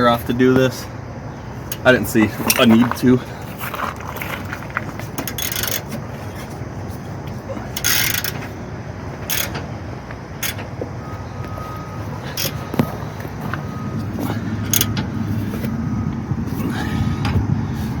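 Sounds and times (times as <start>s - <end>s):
hand tools clicking and knocking: 1.7s - 6.6s, 7.2s - 8.5s, 9.2s - 10.9s, 14.2s - 15.1s.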